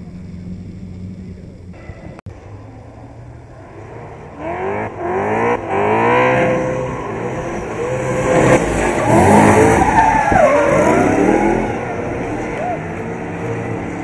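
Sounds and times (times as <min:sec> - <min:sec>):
car engine revving hard: 0:03.8 - 0:14.0.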